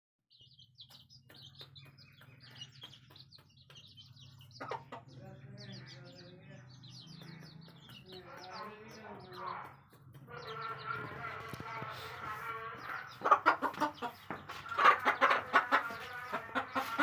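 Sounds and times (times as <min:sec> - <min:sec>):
chicks peeping: 0:00.3 - 0:17.0
hen clucking softly: 0:04.6 - 0:05.1, 0:12.8 - 0:17.0.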